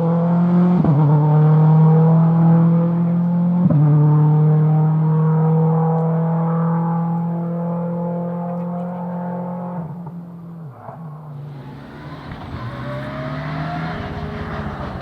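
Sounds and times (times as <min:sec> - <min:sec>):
rally car engine at high revs: 0:00.0 - 0:10.3, 0:11.4 - 0:15.0
rally car approaching: 0:10.8 - 0:15.0.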